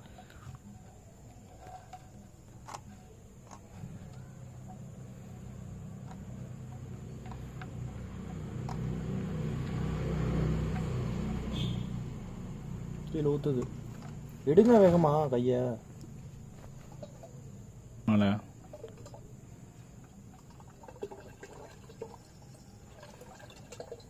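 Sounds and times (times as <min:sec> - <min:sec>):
engine oil pouring out: 0:18.4 - 0:24.0.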